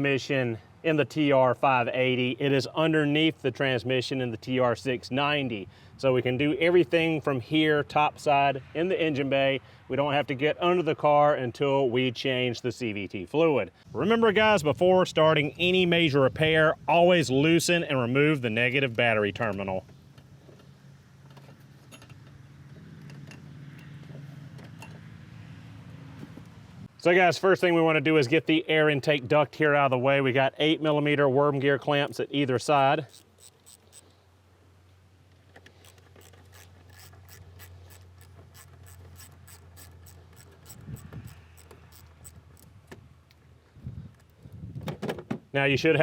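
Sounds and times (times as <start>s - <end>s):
wrench metallic ticks: 33.1s - 34.1s, 35.8s - 42.7s.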